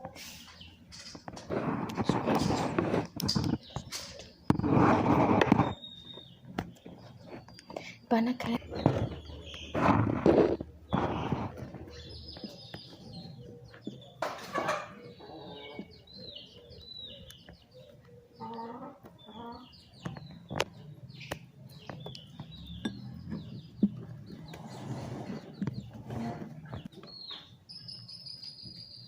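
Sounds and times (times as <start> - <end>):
birds chirping: 0.0 - 29.0
low clucking bird call: 8.6 - 27.0.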